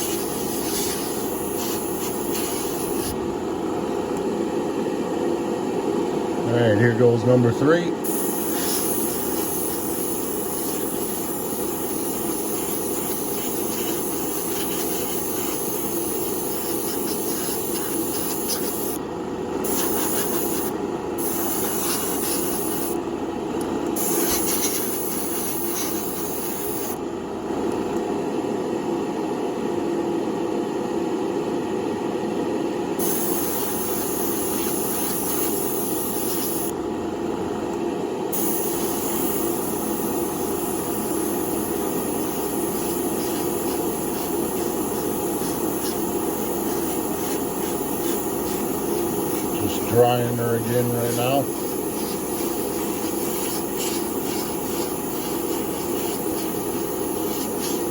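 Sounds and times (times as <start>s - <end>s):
paint sprayer hissing: 0.0s - 3.2s, 8.0s - 19.0s, 19.6s - 23.0s, 24.0s - 27.0s, 33.0s - 36.7s, 38.3s - 57.9s
compressor hum: 0.0s - 57.9s.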